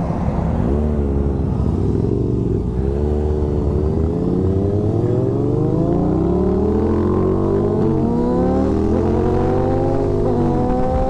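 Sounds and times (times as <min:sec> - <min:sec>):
motorcycle engine accelerating: 0:00.6 - 0:11.0.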